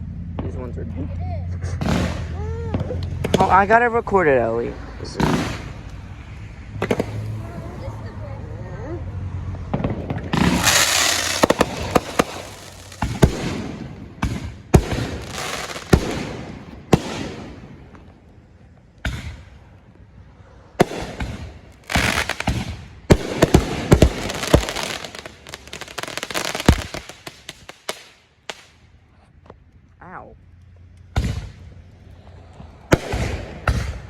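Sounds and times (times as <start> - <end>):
firework bangs: 1.6 - 7.8, 9.6 - 18.4, 19.0 - 20.1, 20.7 - 28.8, 31.1 - 34.0
firework hissing and crackle: 3.2 - 7.9, 10.0 - 17.5, 20.8 - 28.8.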